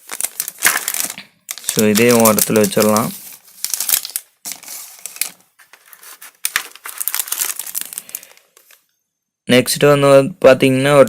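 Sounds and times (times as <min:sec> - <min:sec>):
packaging crinkling and rustling: 0:00.0 - 0:08.8.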